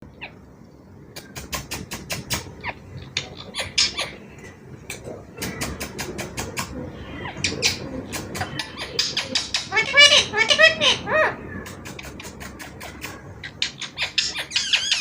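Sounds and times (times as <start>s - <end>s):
parrot squeaky chirps and clicks: 12.0s - 15.0s.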